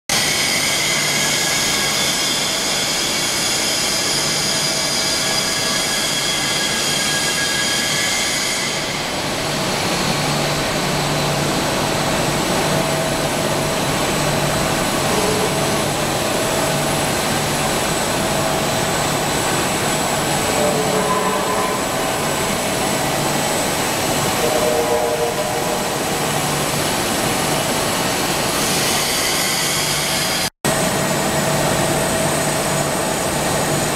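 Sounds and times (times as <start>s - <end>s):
machinery humming and hissing: 0.1s - 33.9s
whining machine tones: 12.0s - 27.6s.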